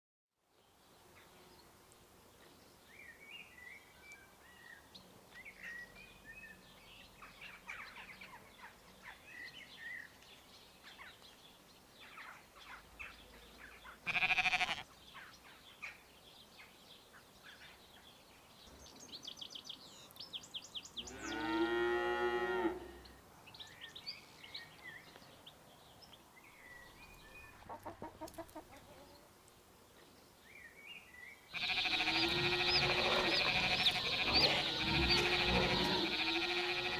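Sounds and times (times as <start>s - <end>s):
small birds chirping: 0.5s - 22.0s, 22.9s - 36.9s
cow mooing: 21.1s - 23.0s, 31.6s - 36.9s.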